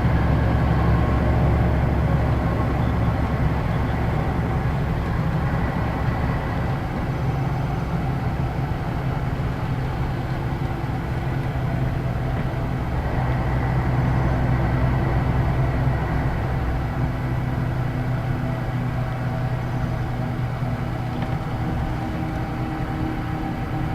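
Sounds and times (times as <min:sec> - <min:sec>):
bus diesel engine droning: 0:00.0 - 0:23.9
road noise: 0:00.0 - 0:23.9.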